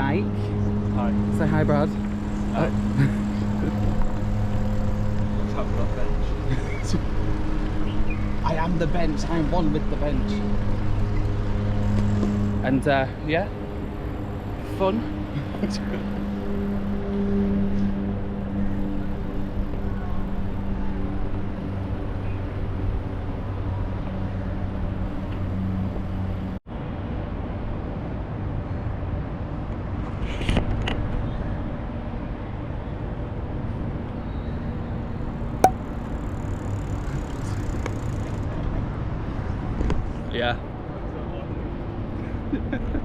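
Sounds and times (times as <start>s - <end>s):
engine hum: 0.0s - 26.6s
road traffic noise: 0.0s - 26.6s, 31.4s - 43.0s.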